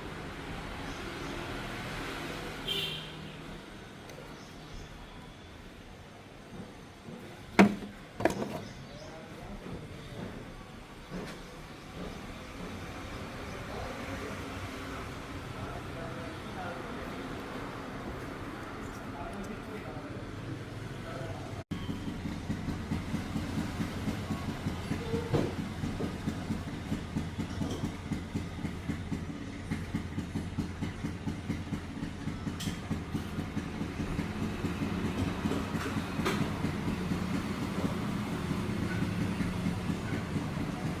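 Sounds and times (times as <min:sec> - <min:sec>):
diesel engine running: 0:19.4 - 0:41.0.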